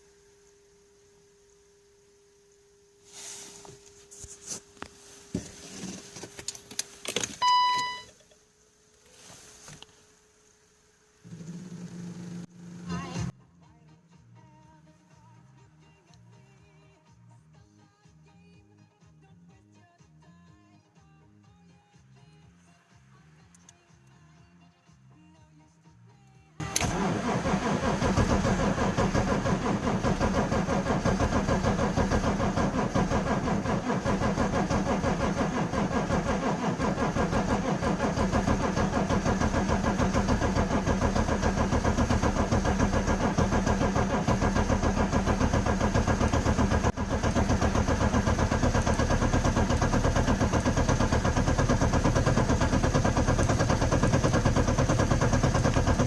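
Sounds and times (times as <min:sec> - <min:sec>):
diesel engine clattering idle: 0:26.6 - 0:56.0.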